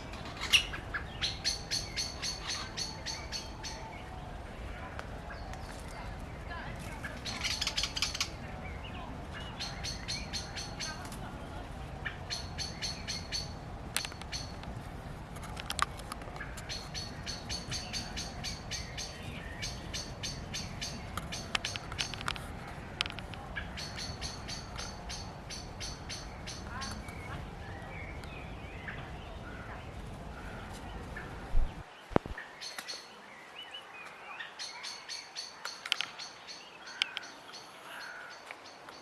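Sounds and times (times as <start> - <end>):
bird harsh chattering rattles: 16.4 - 22.4.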